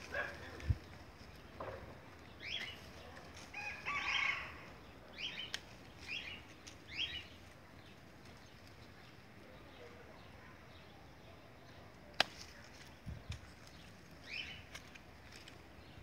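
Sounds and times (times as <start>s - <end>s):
bird calling high calls: 2.3s - 7.4s, 14.2s - 14.8s.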